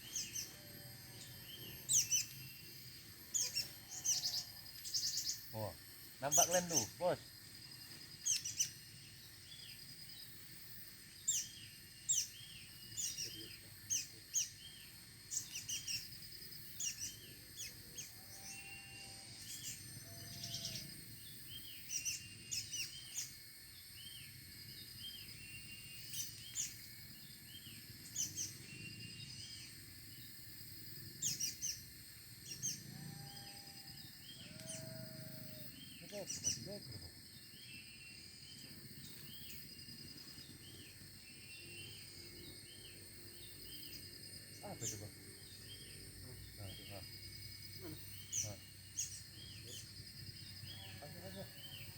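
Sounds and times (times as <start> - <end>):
small birds chirping: 0.0 - 30.4, 31.0 - 51.9
high-pitched insect drone: 0.0 - 51.9.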